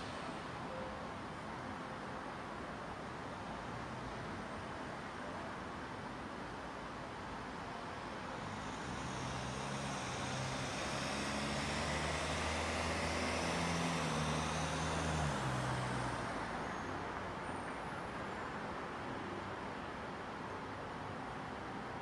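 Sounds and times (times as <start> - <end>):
vehicle engine hum passing: 8.2 - 17.1.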